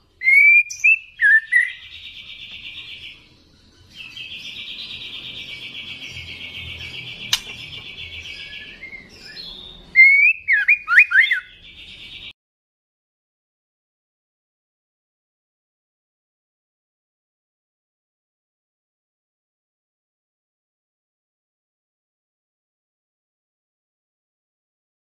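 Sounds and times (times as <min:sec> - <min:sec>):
bird singing buzzy trills: 0:00.0 - 0:12.3
sweeping whistled bird notes: 0:00.2 - 0:12.3
sharp click: 0:07.3 - 0:07.6.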